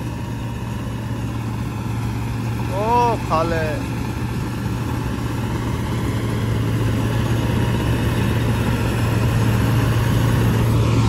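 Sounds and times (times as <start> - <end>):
combine harvester engine drone: 0.0 - 11.0.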